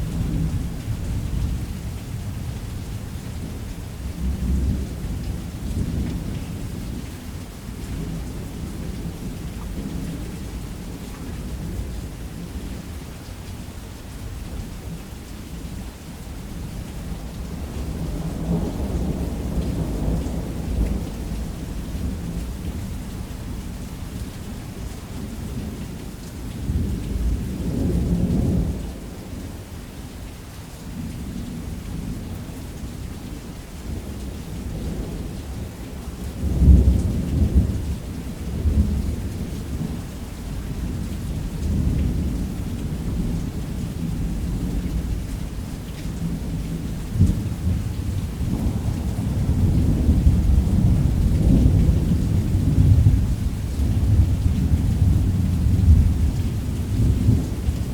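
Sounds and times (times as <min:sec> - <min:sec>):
steady rain: 0:00.0 - 0:57.9
thunder rumbling: 0:46.5 - 0:57.9.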